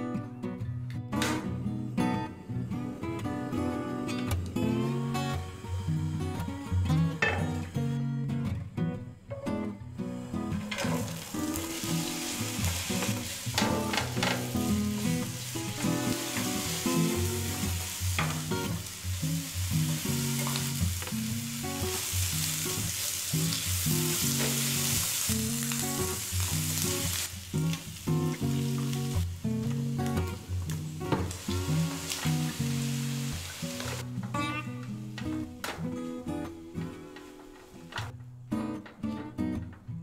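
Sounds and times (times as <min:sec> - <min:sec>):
bacon and onion sizzling: 0:10.2 - 0:35.2
utensil knocking pan: 0:12.7 - 0:14.8.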